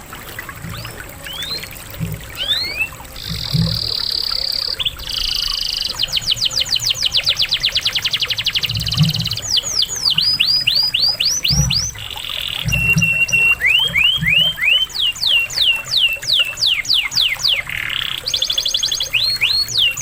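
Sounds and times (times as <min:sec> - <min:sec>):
canary singing: 0:00.8 - 0:01.7, 0:02.3 - 0:20.0.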